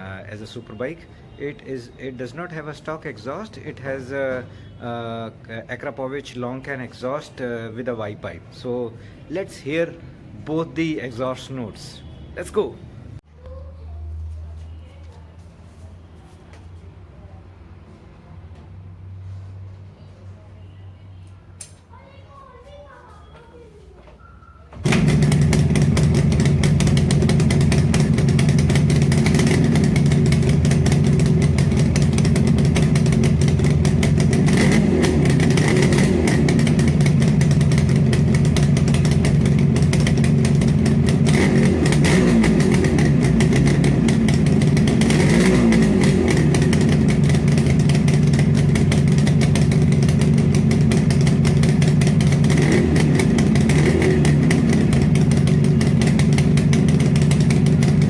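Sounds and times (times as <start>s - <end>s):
motorcycle engine idling: 24.8s - 58.0s.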